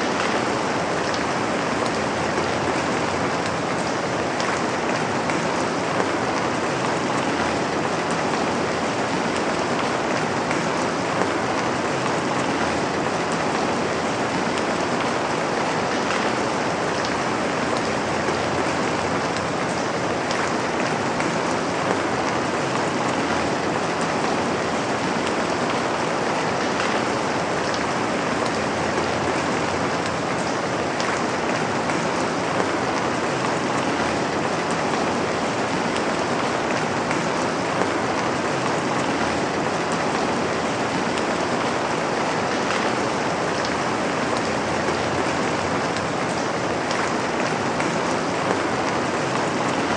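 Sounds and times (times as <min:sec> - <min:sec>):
steady rain hiss: 0:00.0 - 0:49.9.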